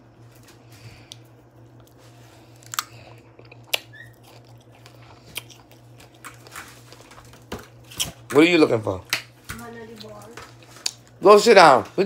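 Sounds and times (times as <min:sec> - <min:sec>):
steady low hum: 0:00.0 - 0:12.0
person chewing a strawberry: 0:00.2 - 0:08.3, 0:10.5 - 0:11.2.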